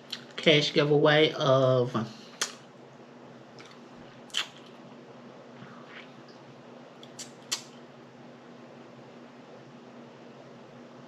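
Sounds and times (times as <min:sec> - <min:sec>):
faint steady hum: 0:00.0 - 0:11.0
lip smacking and chewing: 0:03.6 - 0:04.8.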